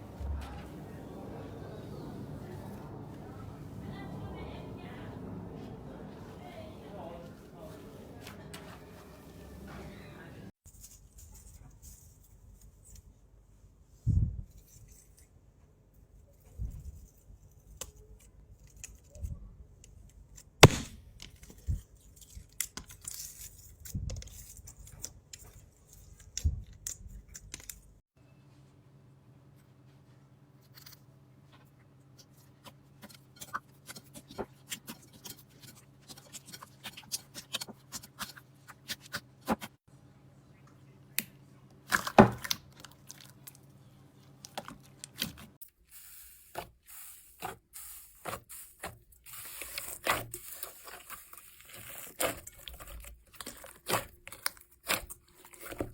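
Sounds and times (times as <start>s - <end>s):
slime crackling and popping: 20.6s - 21.0s.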